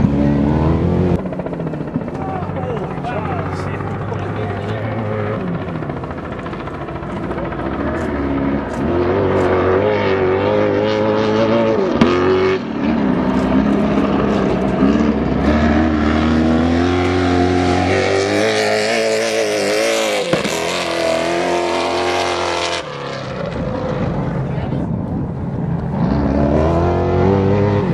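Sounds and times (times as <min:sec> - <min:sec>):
truck engine revving hard: 0:07.2 - 0:24.2, 0:25.9 - 0:27.9.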